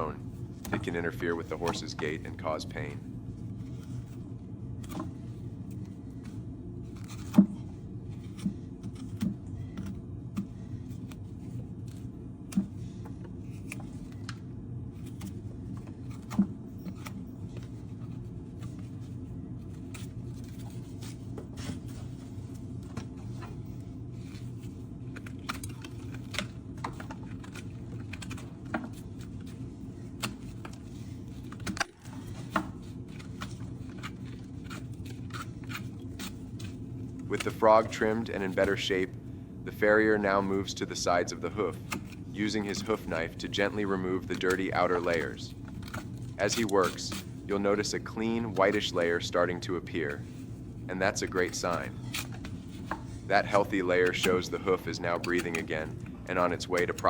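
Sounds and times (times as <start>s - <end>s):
steady low hum: 0.0s - 57.0s
knife cutting and scraping hoof: 51.4s - 55.8s.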